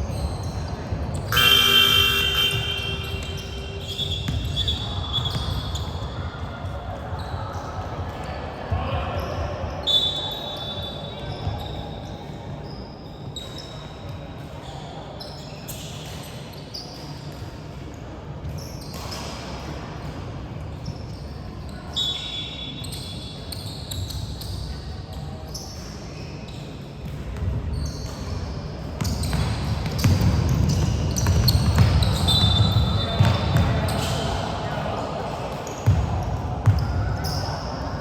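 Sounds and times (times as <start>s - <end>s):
sneakers squeaking: 0.0s - 17.8s, 18.4s - 38.0s
echoing voices in gym: 0.0s - 38.0s
basketball bouncing on court: 0.1s - 6.2s, 29.0s - 34.3s, 35.8s - 37.5s.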